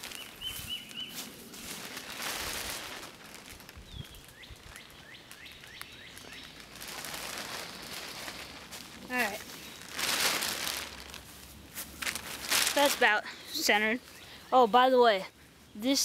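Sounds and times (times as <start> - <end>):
small bird chirping: 0.0 - 1.3, 3.9 - 8.7
outdoor background noise: 0.0 - 16.0.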